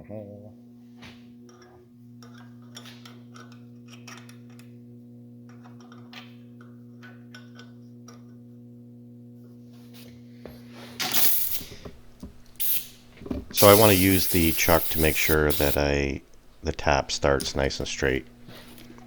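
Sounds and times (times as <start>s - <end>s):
magnetic drill humming: 10.5s - 19.0s
short loud hiss: 11.0s - 11.9s, 12.6s - 13.0s, 13.6s - 15.8s
drill bit clicking in brass: 13.6s - 16.6s.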